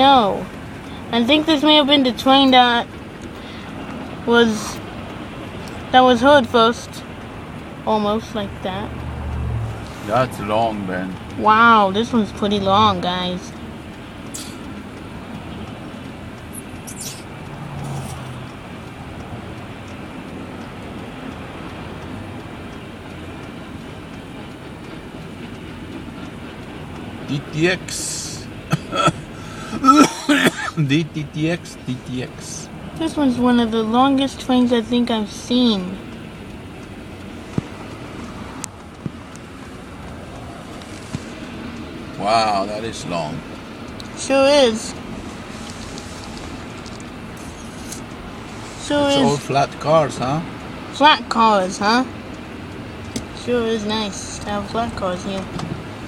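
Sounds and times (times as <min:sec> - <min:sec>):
car interior rumble: 0:00.0 - 0:56.0
freight train passing: 0:07.0 - 0:28.7, 0:31.0 - 0:40.8.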